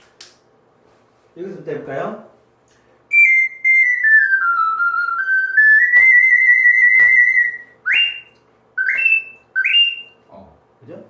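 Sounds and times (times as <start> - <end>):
ocarina melody: 3.1 - 10.2.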